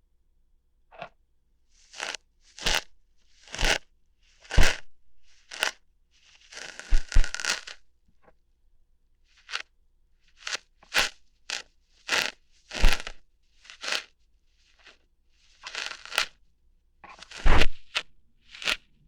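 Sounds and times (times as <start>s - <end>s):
ear hair plucking crackles: 1.8s - 3.8s, 4.4s - 4.8s, 5.4s - 7.8s, 9.4s - 9.6s, 10.4s - 16.4s, 17.0s - 18.9s
rustling crackling: 5.3s - 7.7s, 10.4s - 16.4s, 17.1s - 19.0s.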